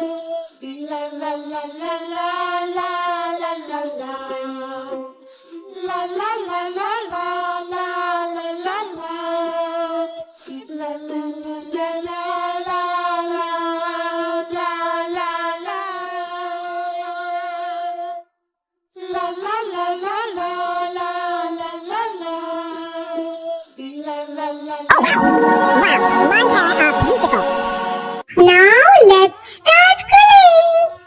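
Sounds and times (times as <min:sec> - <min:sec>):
high voice singing wordless melody: 0:24.9 - 0:31.0.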